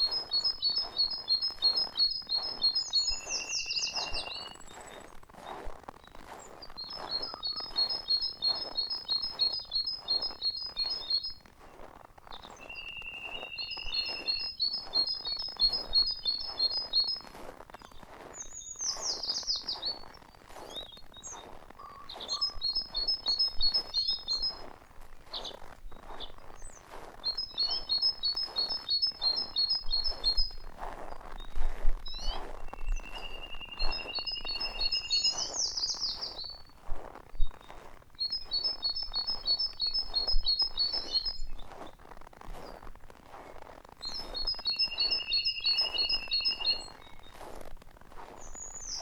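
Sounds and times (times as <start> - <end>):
bird whistle: 0.0 - 4.6, 6.8 - 11.4, 12.3 - 17.2, 18.5 - 20.0, 21.8 - 24.6, 32.1 - 36.7, 37.5 - 41.6, 44.0 - 47.3
songbird trilling: 0.0 - 4.9, 6.7 - 11.5, 12.3 - 17.2, 17.9 - 24.7, 25.3 - 36.7, 37.4 - 41.7, 44.0 - 47.4, 48.4 - 49.0
rustling noise: 0.0 - 49.0.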